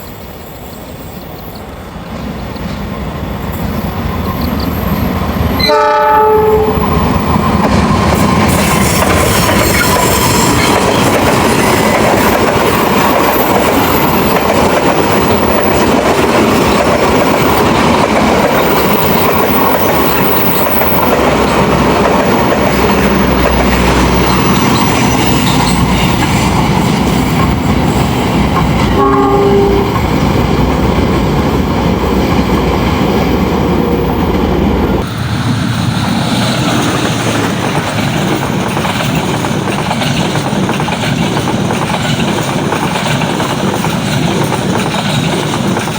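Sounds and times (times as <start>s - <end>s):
train rumble and wheel clatter: 0.0s - 45.9s
train horn blast: 5.6s - 7.0s, 28.9s - 30.0s.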